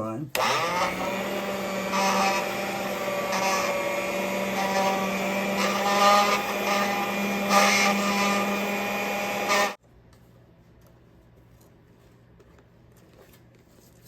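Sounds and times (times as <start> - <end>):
electric mixer beating batter: 0.4 - 9.8.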